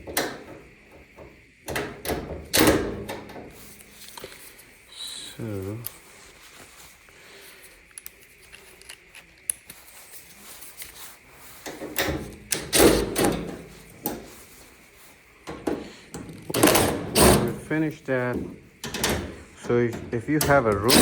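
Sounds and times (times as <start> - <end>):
dryer cabinet parts scraping and knocking: 0.0 - 4.1, 11.4 - 14.8, 15.4 - 21.0.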